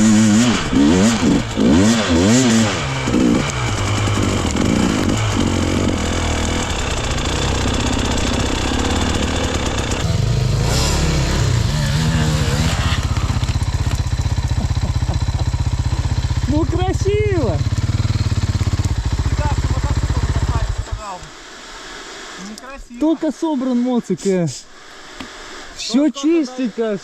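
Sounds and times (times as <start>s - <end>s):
motorcycle engine revving and idling: 0.0s - 21.2s.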